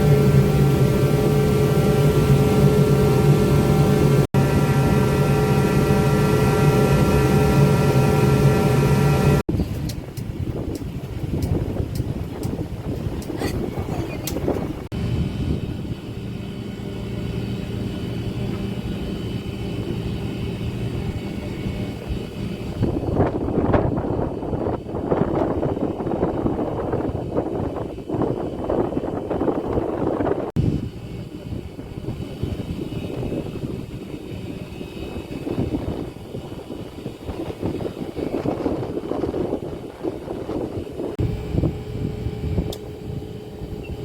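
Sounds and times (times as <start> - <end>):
ferry engines humming: 0.0 - 44.0
wind buffeting microphone: 0.0 - 44.0
faint high whine: 41.2 - 44.0.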